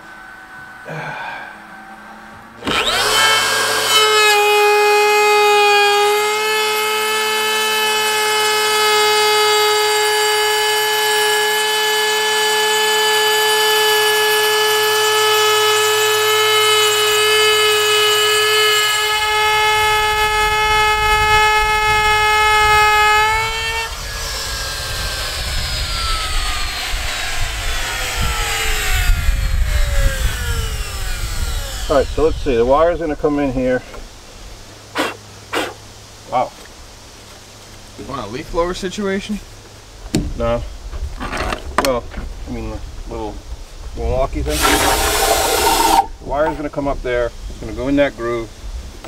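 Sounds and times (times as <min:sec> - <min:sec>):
power tool motor whining: 0:02.6 - 0:33.4, 0:34.9 - 0:35.8, 0:44.5 - 0:46.7.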